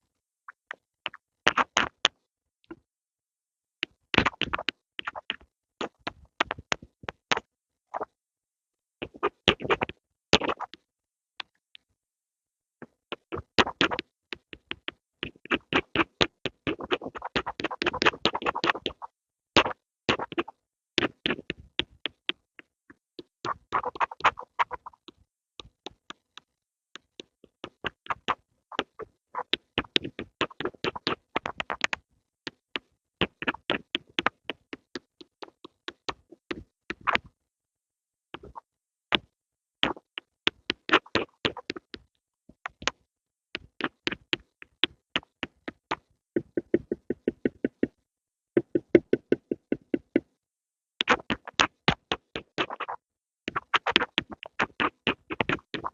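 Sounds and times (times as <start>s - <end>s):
pencil tapping: 43.6s - 48.0s, 48.6s - 50.3s.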